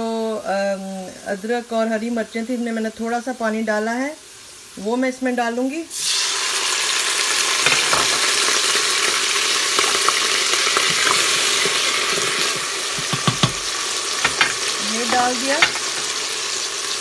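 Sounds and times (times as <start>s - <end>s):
food sizzling in hot oil: 0.0s - 17.0s
stirring clicks and scrapes: 9.8s - 16.2s
sharp knocks: 12.9s - 16.1s.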